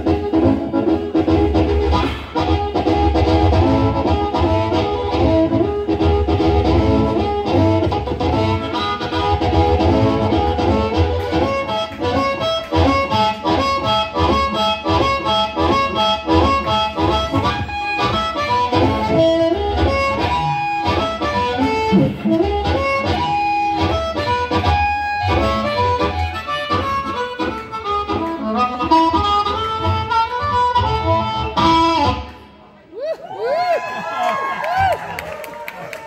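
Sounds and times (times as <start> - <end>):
harmonica: 0.0 - 32.4
guitar: 0.0 - 32.7.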